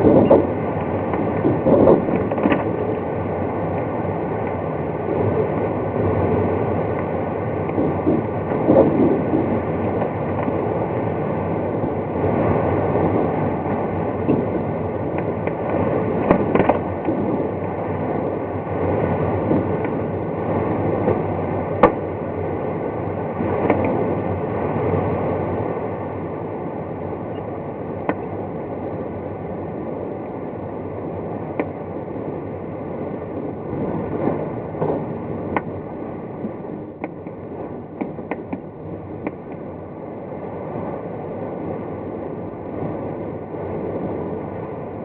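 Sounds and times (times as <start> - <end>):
airflow rushing past cockpit: 0.0 - 45.0
airframe clicks and knocks: 1.1 - 2.8.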